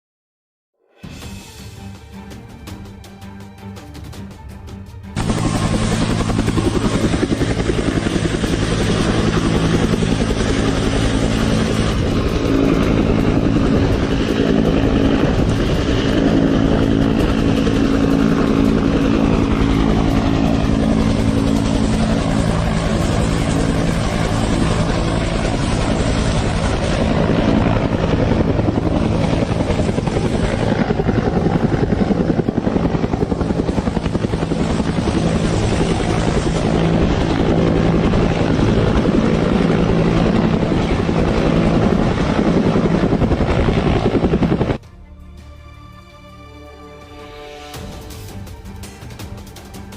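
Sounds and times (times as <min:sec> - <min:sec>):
helicopter rotor chop: 0:01.2 - 0:44.8, 0:47.6 - 0:49.9
high turbine whine: 0:05.1 - 0:44.8.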